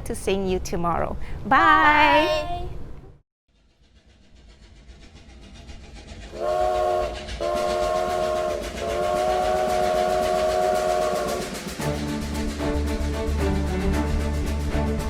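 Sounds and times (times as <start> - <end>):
train rumble: 3.6 - 15.0
train whistle blasts: 6.3 - 12.1.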